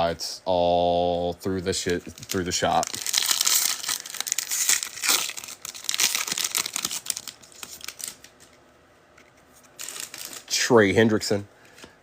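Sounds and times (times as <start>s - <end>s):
foil wrapper crinkling and tearing: 1.8s - 8.4s, 9.8s - 10.6s.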